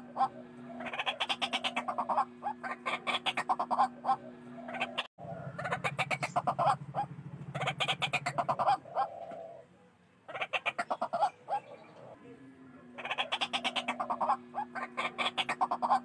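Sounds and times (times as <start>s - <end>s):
waterhens calling: 0.0s - 9.7s, 10.3s - 12.2s, 12.9s - 16.0s
low steady hum: 0.0s - 16.0s.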